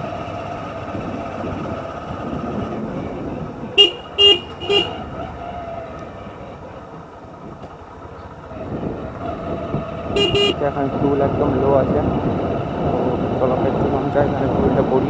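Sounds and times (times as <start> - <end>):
motorcycle riding: 0.0 - 15.0
short horn toots: 3.8 - 5.0, 10.1 - 10.6.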